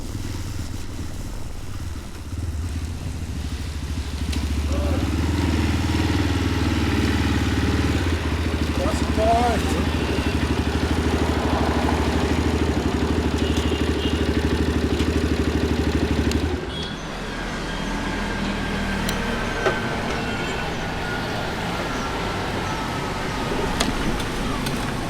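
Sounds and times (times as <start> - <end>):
motorcycle engine running: 0.0 - 16.8
street traffic noise: 0.0 - 25.0.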